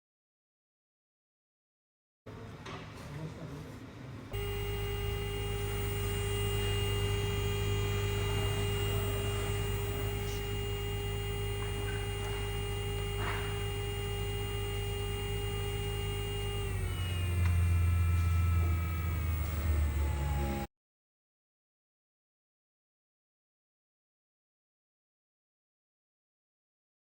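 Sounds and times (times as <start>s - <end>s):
low hum: 4.4s - 20.7s
servo motor whine: 4.4s - 20.7s.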